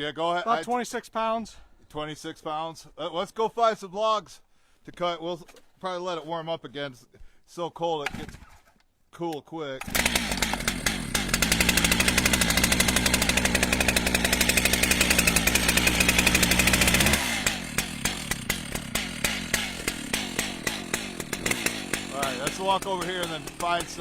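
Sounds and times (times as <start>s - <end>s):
chainsaw engine running: 9.8s - 24.0s.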